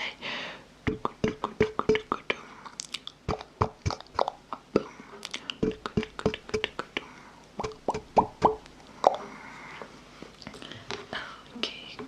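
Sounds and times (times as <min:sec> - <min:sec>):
wet lip and tongue pops: 0:00.9 - 0:07.0, 0:07.6 - 0:09.2.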